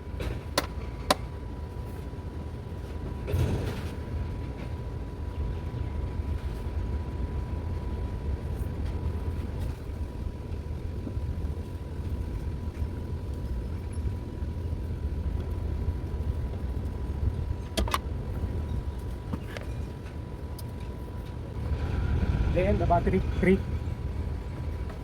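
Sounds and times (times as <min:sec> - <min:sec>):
low mechanical rumble: 0:00.0 - 0:25.0.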